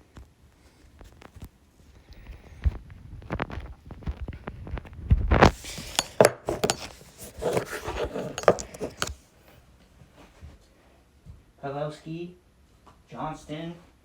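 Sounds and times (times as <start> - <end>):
plastic hockey sticks clacking: 5.4 - 9.2
puck knocking: 5.5 - 9.2.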